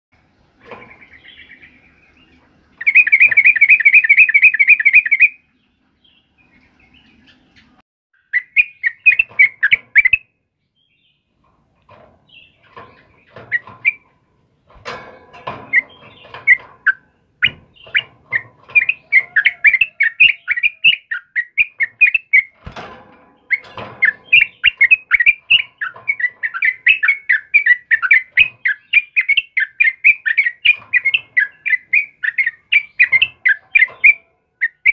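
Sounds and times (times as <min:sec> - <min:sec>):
bird trilling: 0:00.8 - 0:05.4, 0:06.5 - 0:10.3, 0:12.3 - 0:14.1, 0:15.6 - 0:22.6, 0:23.4 - 0:34.9
bird chattering notes: 0:02.8 - 0:05.4, 0:07.1 - 0:10.2, 0:15.7 - 0:22.6, 0:23.5 - 0:34.9.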